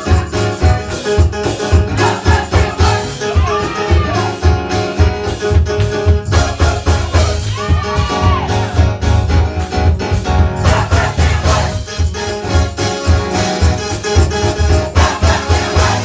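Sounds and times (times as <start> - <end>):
drums and bass beat: 0.0 - 16.0
gospel choir singing: 1.7 - 5.0, 6.2 - 9.0, 10.5 - 12.6, 13.4 - 16.0.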